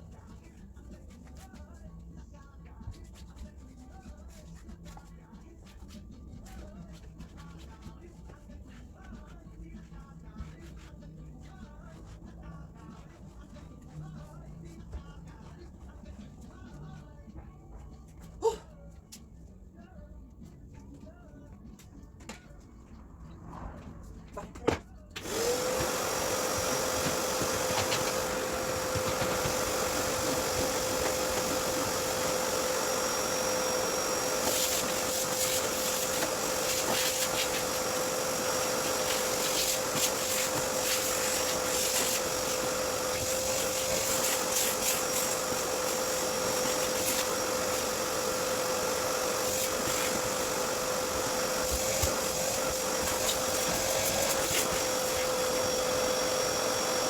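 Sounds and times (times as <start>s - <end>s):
vacuum cleaner running: 25.2s - 57.0s.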